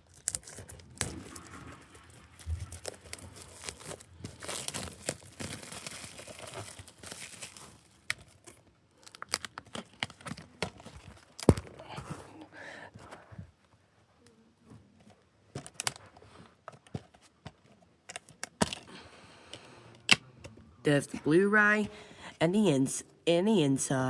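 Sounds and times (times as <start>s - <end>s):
plastic wrap tearing and crinkling: 0.0s - 11.9s.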